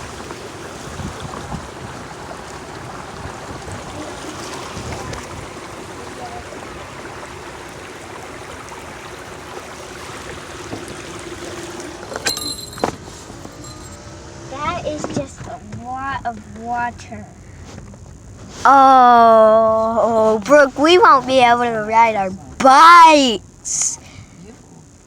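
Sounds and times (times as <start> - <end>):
floodwater rushing: 0.0 - 14.5.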